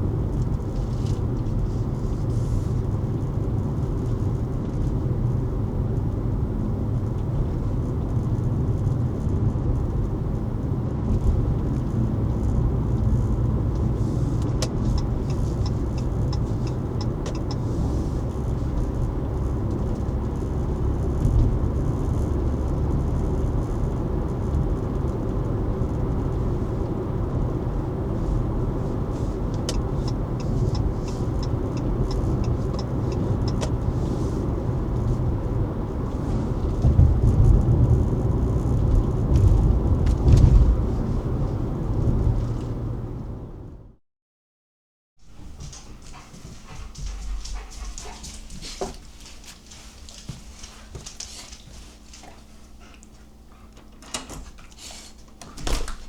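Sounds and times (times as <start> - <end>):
car engine and road rumble: 0.0 - 44.0
light ticking: 13.2 - 20.5, 29.5 - 33.9.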